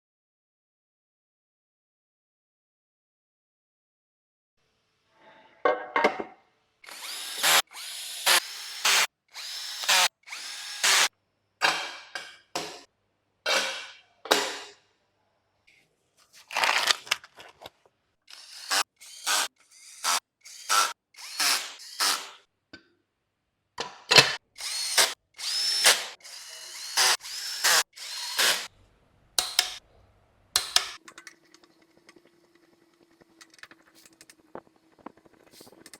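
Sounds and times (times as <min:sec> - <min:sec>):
power drill whining in bursts: 0:06.9 - 0:11.1, 0:18.3 - 0:22.4, 0:24.6 - 0:28.7.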